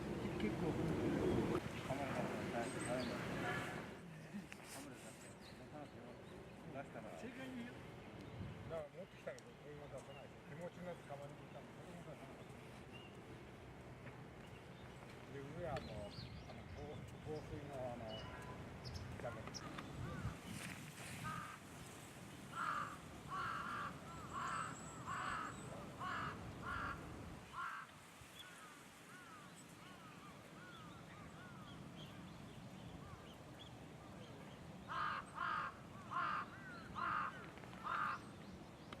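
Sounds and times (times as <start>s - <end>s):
bird harsh calls: 22.5s - 32.2s, 34.8s - 38.6s.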